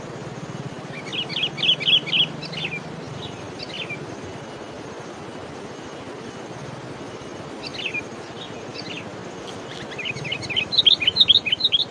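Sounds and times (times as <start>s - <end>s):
background hiss: 0.0s - 11.9s
small bird chirping: 0.9s - 4.0s, 7.6s - 11.9s.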